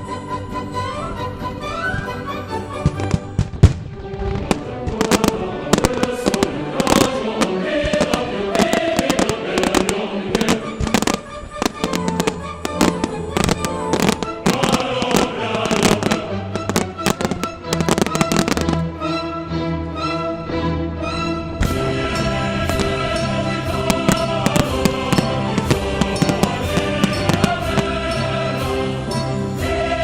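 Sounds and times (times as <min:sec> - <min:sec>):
fireworks bangs and crackles: 0:02.8 - 0:18.8, 0:21.6 - 0:29.3
loud music: 0:04.5 - 0:30.0.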